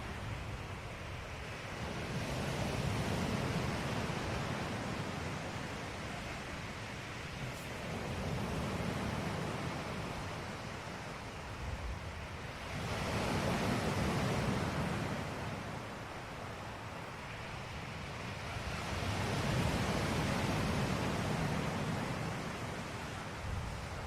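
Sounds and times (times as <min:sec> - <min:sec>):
ocean waves breaking on shore: 0:00.0 - 0:24.0.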